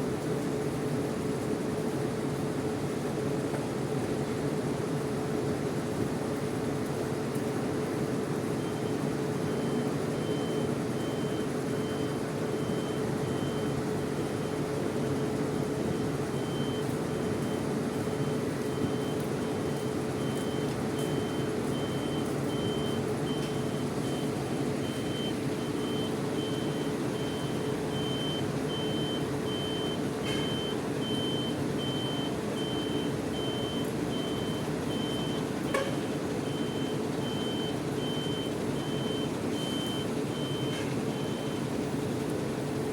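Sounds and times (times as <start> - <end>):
bus engines idling: 6.4 - 42.9
reversing alarm beeping: 8.6 - 42.0.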